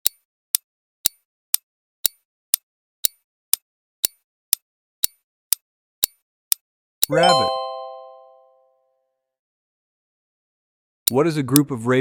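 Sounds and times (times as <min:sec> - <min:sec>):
countdown timer ticks: 0:02.0 - 0:06.2, 0:07.0 - 0:08.4.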